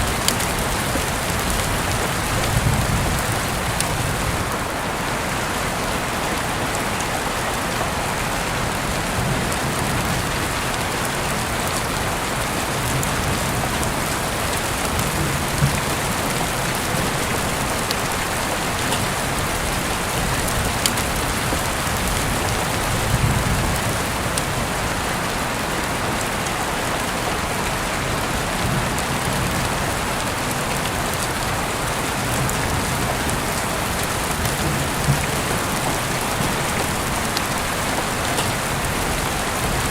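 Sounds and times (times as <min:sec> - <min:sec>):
heavy rain falling: 0:00.0 - 0:39.9
water drips ticking: 0:12.8 - 0:22.9, 0:32.0 - 0:39.7.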